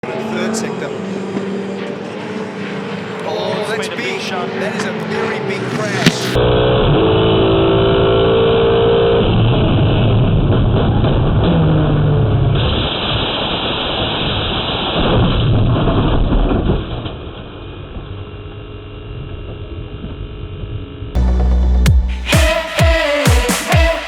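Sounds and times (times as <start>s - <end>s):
race car engine rumble: 0.0s - 8.6s.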